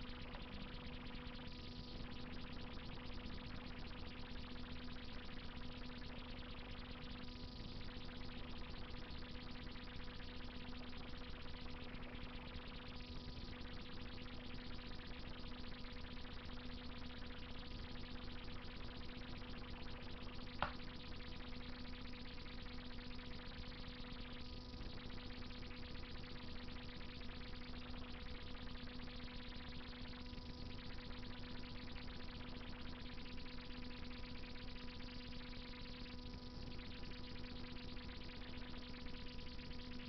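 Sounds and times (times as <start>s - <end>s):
sharp pop: 20.6s - 20.8s.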